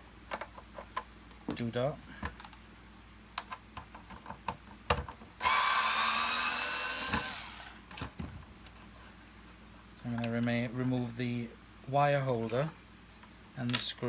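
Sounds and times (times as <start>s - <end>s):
cordless screwdriver whining: 5.4s - 7.8s.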